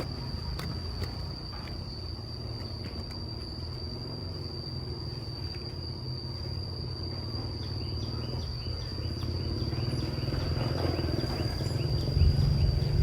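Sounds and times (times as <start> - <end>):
insect chirping calls: 0.0 - 13.0
insect trilling: 0.0 - 13.0.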